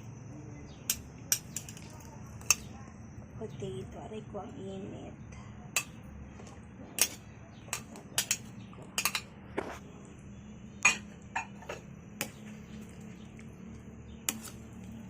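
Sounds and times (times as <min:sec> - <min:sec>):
metal utensil clinking on pot: 0:07.0 - 0:09.3, 0:10.8 - 0:12.4.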